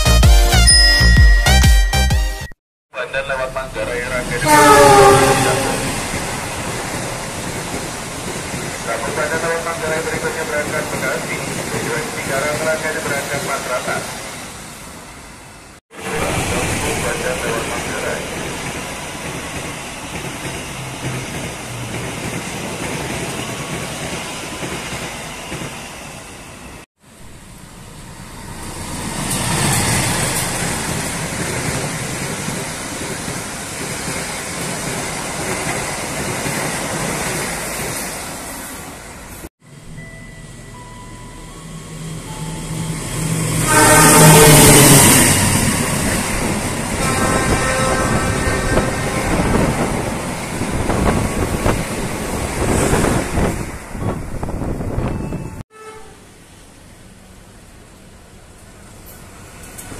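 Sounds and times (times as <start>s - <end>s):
train passing: 3.0s - 59.9s.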